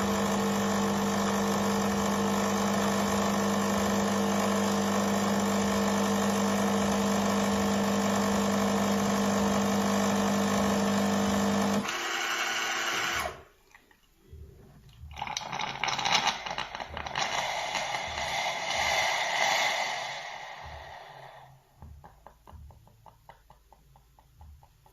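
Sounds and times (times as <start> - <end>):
coffee machine motor hum: 0.0 - 13.4, 14.3 - 22.7.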